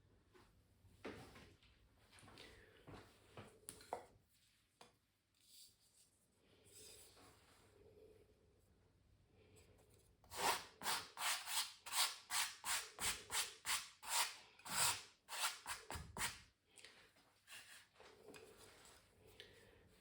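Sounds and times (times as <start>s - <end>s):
pencil scratching on canvas: 10.3s - 16.4s.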